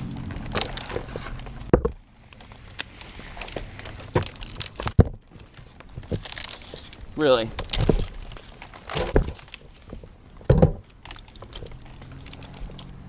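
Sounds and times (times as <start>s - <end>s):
idling engine hum: 0.0s - 4.4s, 9.6s - 13.0s
sharp clicks and knocks: 0.2s - 13.0s.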